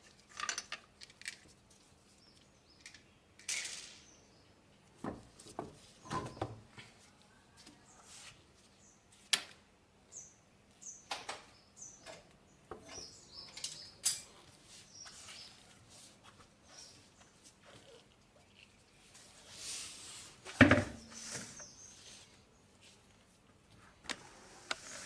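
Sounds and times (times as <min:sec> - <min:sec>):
tools and parts clicking and knocking: 0:00.3 - 0:01.4, 0:13.5 - 0:14.3.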